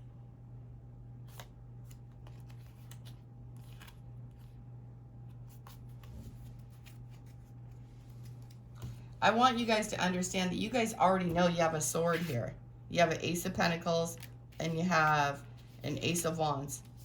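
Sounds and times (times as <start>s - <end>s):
low electrical hum: 0.0s - 17.0s
cards clicking and rustling: 1.3s - 4.6s.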